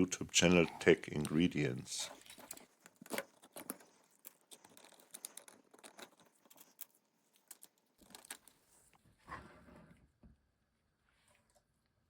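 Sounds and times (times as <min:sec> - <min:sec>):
crinkling: 0:00.0 - 0:09.1.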